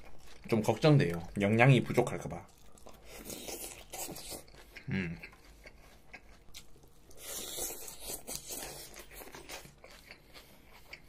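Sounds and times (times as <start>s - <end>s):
person chewing salad: 0.0s - 11.0s.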